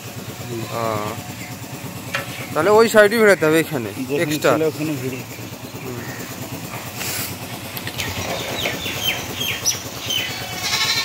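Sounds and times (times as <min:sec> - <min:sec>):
low engine-like rumble: 0:00.0 - 0:11.0
small bird chirping: 0:07.9 - 0:11.0.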